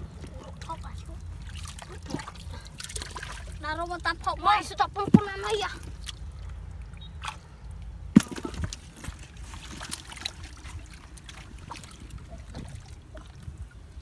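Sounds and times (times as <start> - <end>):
hands sloshing in muddy water: 0.0 - 4.7, 5.8 - 14.0
steady low rumble: 0.0 - 14.0
wet squelches: 0.0 - 14.0.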